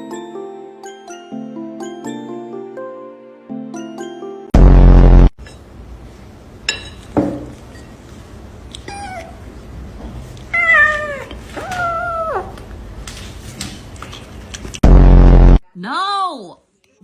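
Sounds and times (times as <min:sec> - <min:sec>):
cat meowing: 0:10.5 - 0:12.6.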